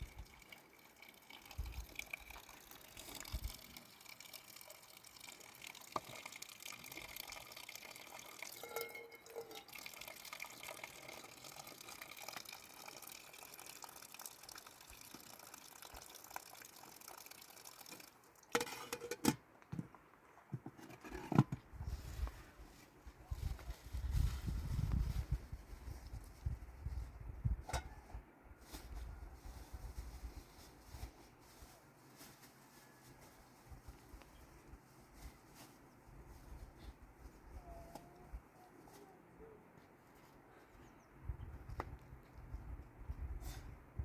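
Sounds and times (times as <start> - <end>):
water trickling: 0.0 - 18.6.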